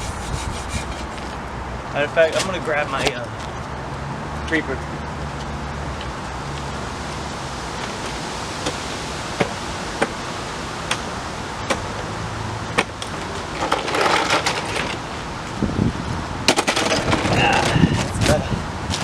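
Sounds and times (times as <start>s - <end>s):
rattling and scraping: 0.0s - 1.7s
background hiss: 0.0s - 1.8s.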